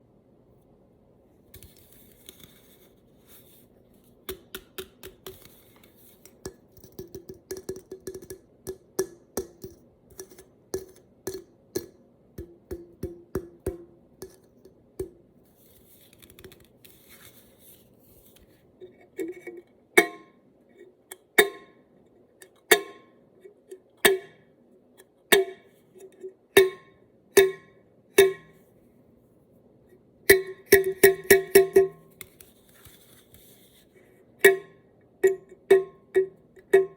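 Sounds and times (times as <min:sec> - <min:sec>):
tapping on a metal can: 0:06.4 - 0:15.2.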